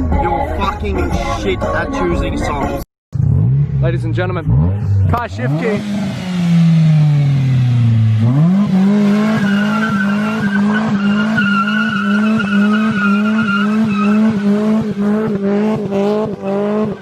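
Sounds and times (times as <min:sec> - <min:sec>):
car engine revving: 0:03.2 - 0:17.0
tyres squealing: 0:09.2 - 0:14.6.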